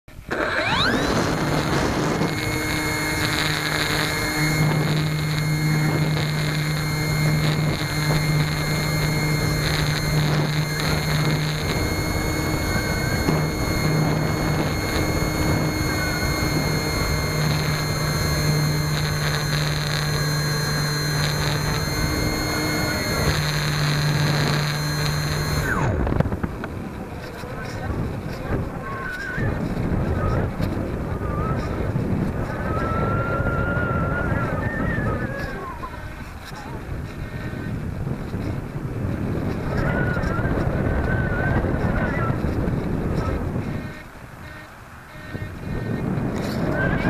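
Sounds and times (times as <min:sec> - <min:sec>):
electric motor and propeller whine: 0:00.1 - 0:47.0.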